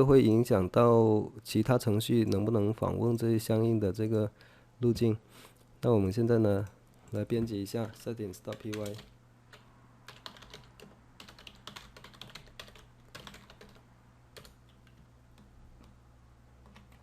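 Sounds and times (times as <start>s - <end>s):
low steady hum: 0.0s - 17.0s
faint keyboard typing: 7.0s - 16.0s, 16.6s - 17.0s.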